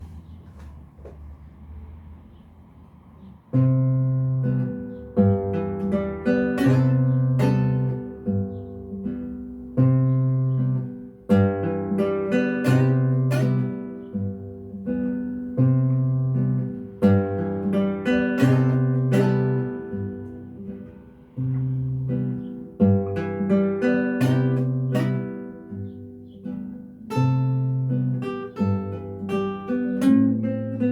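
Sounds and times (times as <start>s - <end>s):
acoustic guitar plucking: 3.0s - 30.9s.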